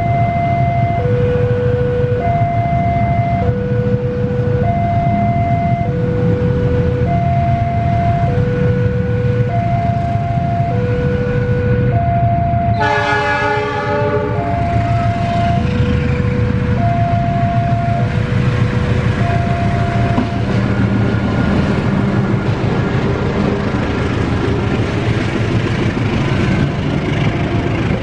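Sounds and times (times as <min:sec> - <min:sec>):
level-crossing two-tone alarm: 0:00.0 - 0:22.1
diesel locomotive rumble: 0:00.0 - 0:28.0
locomotive horn: 0:12.6 - 0:22.1.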